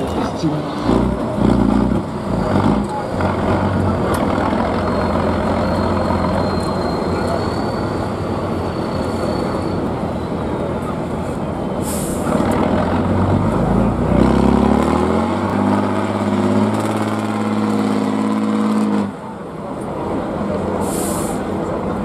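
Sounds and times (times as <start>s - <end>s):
diesel truck engine revving: 0.0s - 10.5s, 11.7s - 22.0s
short hiss of air: 11.8s - 12.3s, 20.8s - 21.4s.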